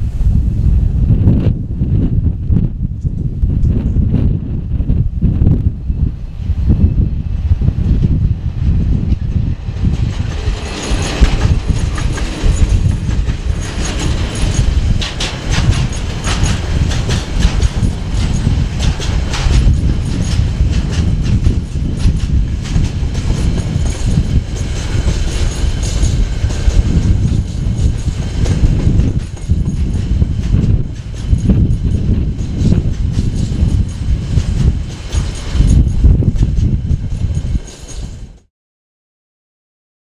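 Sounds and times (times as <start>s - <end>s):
freight train wagons rumbling: 0.1s - 38.4s
wheels clicking over rail joints: 9.8s - 38.1s.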